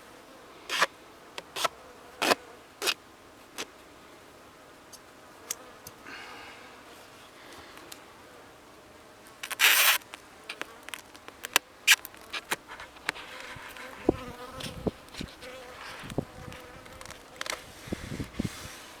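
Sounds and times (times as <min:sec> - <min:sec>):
honeybees buzzing: 0:07.6 - 0:19.0.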